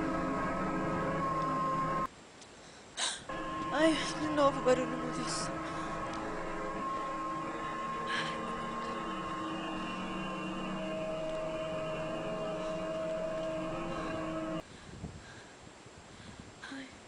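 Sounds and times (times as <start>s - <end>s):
multi-tone droning hum: 0.0s - 2.1s, 3.3s - 14.6s.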